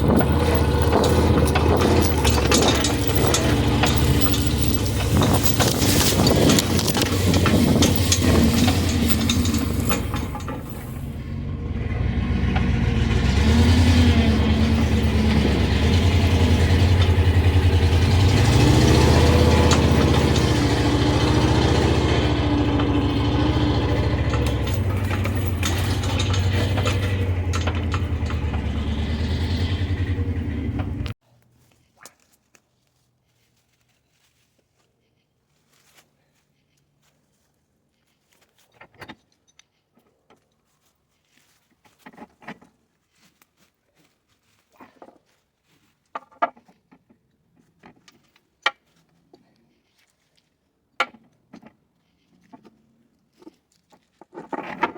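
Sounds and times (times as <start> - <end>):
truck engine under load: 0.0 - 31.2.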